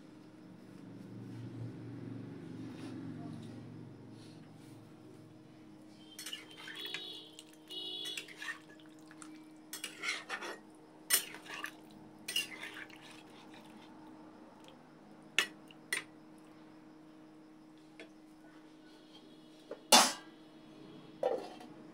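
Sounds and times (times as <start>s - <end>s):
utensils and dishes clinking: 6.1s - 6.8s, 9.8s - 11.7s, 12.3s - 13.0s.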